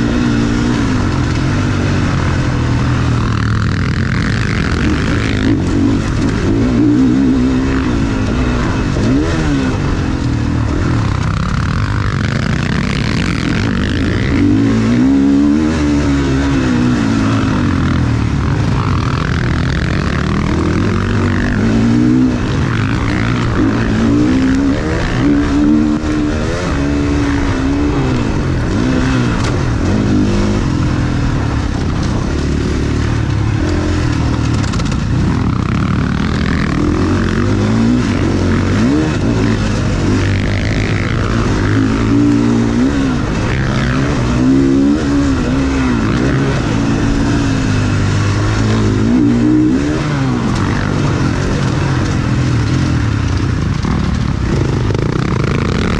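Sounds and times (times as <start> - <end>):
motorbike engine revving: 0.0 - 55.9.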